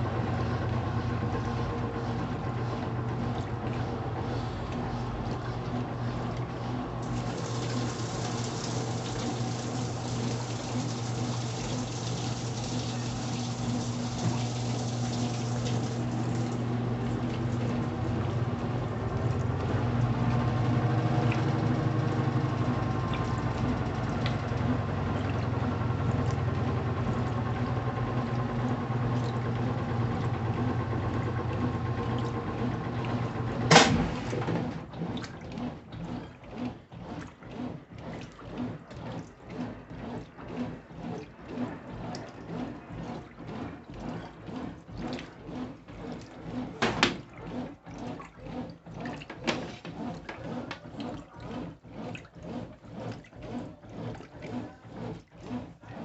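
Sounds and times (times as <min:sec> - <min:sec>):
washing machine motor hum: 0:00.0 - 0:56.0
water sloshing in pulses: 0:00.0 - 0:56.0
sharp clunk: 0:33.7 - 0:34.6.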